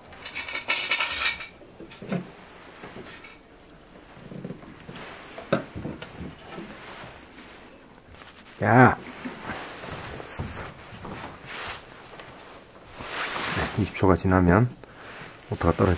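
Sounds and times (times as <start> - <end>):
wires rustling and scraping: 0.0 - 15.9.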